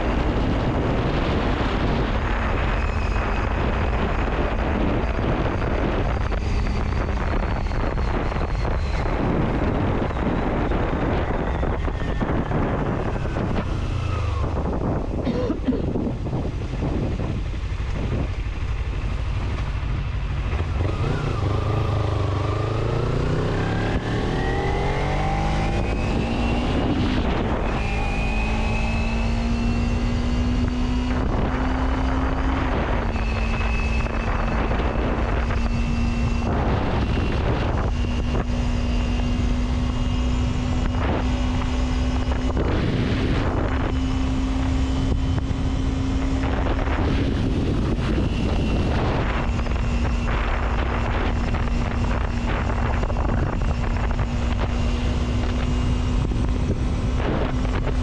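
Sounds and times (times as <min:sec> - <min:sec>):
road and wind noise in rain: 0:00.0 - 0:58.0
vehicle engine: 0:00.0 - 0:58.0.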